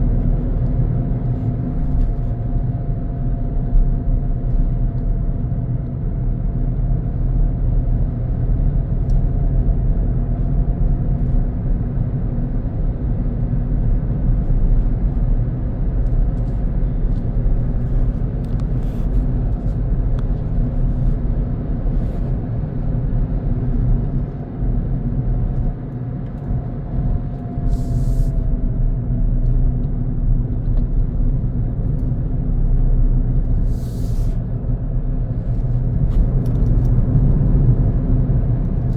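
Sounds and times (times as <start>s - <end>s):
car engine hum: 0.0s - 38.9s
short hisses: 33.7s - 34.4s.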